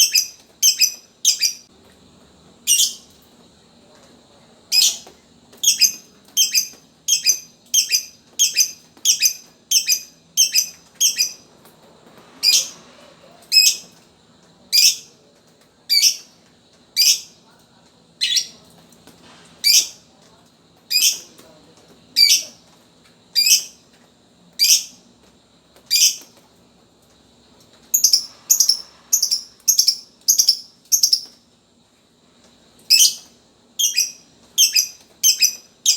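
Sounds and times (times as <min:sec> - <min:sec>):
bird chirping: 0:00.0 - 0:01.6, 0:02.7 - 0:03.1, 0:05.6 - 0:11.4, 0:28.0 - 0:31.3, 0:32.9 - 0:35.9.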